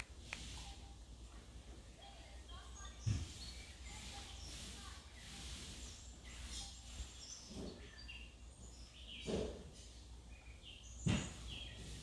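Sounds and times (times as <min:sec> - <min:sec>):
birds chirping faintly: 0:00.0 - 0:12.0.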